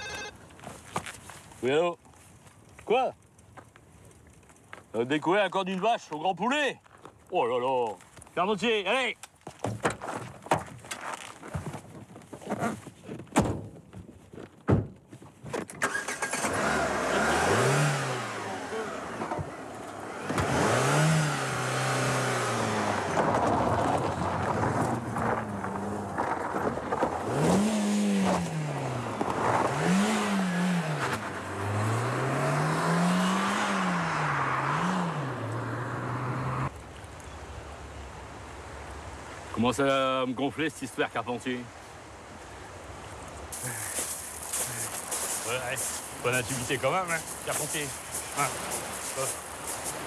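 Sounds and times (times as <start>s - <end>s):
road noise: 0.0s - 2.0s, 15.8s - 50.0s
car engine revving: 15.8s - 23.7s, 27.2s - 36.7s.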